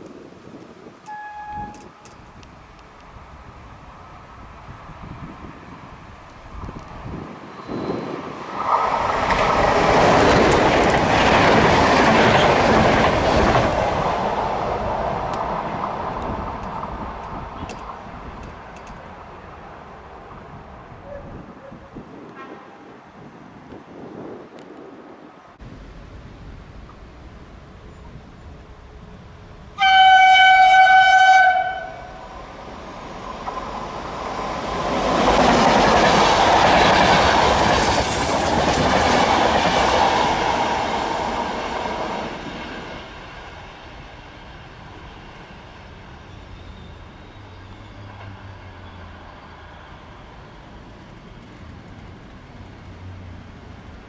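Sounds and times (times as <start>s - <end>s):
train wheels rushing on rail: 0.2s - 21.2s, 25.8s - 54.0s
locomotive horn blast: 1.1s - 2.0s, 29.8s - 32.2s
high squeal: 7.4s - 9.0s, 43.0s - 50.7s.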